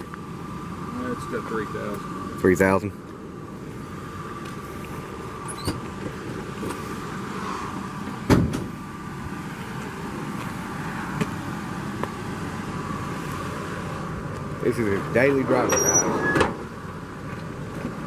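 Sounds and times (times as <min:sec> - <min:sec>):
truck door shutting: 0:05.4 - 0:06.1, 0:08.2 - 0:08.8, 0:15.6 - 0:16.7.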